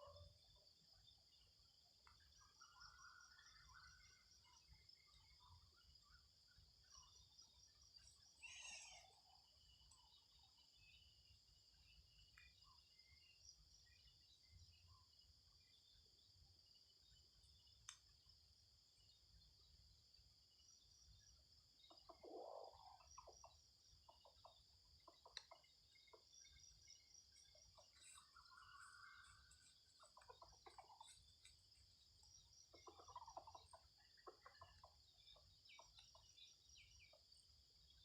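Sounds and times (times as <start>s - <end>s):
insect chorus: 0.0s - 38.0s
bird calling: 8.4s - 9.4s.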